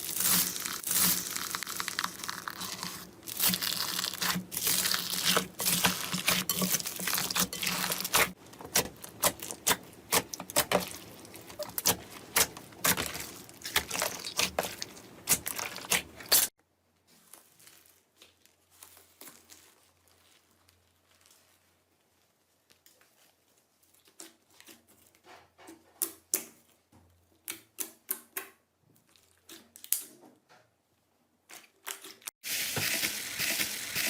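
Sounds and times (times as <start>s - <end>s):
slime crackling and popping: 0.0s - 16.5s
soft squishing: 0.0s - 25.2s.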